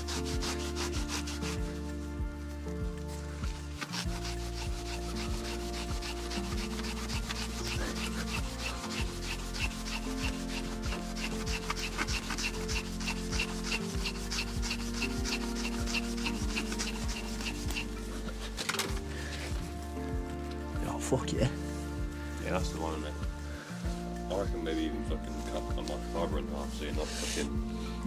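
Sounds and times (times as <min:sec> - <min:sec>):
background music with sustained chords: 0:00.0 - 0:28.0
cloth rubbing on metal: 0:00.0 - 0:28.0.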